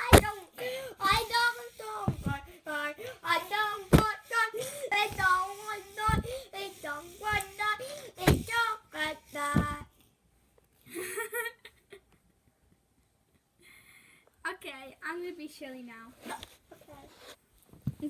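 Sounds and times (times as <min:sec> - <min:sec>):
sharp knocks: 0:00.0 - 0:00.3, 0:06.0 - 0:06.4, 0:08.2 - 0:08.6
child singing wordless melody: 0:00.0 - 0:10.0.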